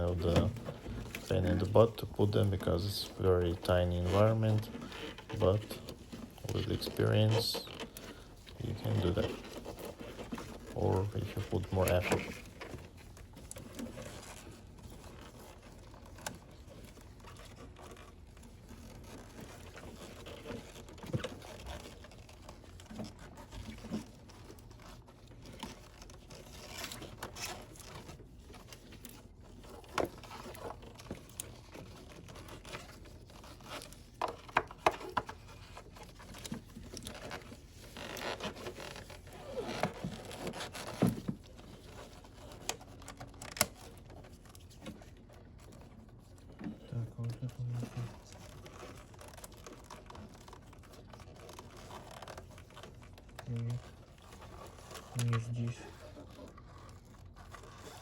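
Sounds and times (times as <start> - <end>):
plastic covers scraping and rustling: 0.0 - 58.0.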